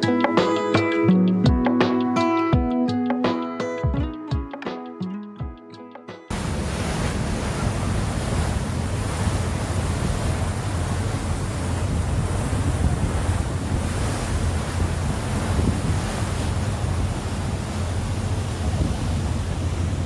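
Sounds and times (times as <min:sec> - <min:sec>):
background music: 0:00.0 - 0:06.3
wind roaring on microphone: 0:06.3 - 0:20.0.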